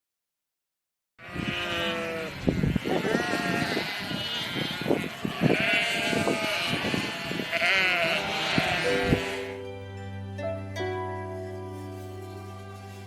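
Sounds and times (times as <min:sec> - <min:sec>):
sheep bleating: 0:01.2 - 0:09.6.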